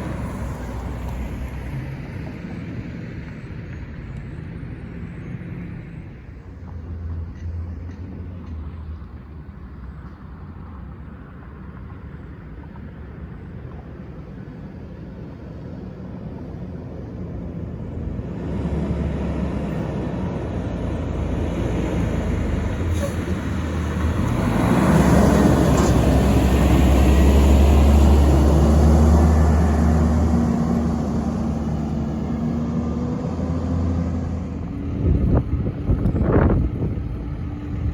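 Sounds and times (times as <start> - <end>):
garbage truck diesel engine: 0.0 - 4.2, 15.1 - 37.9
road noise: 0.0 - 37.9.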